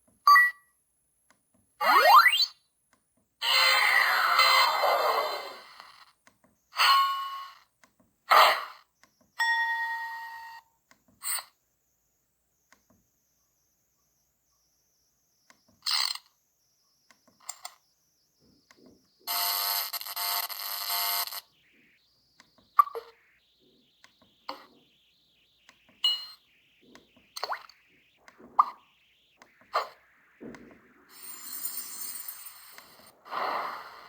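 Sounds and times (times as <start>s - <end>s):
electronic blips: 1.8s - 2.6s, 19.2s - 34.0s.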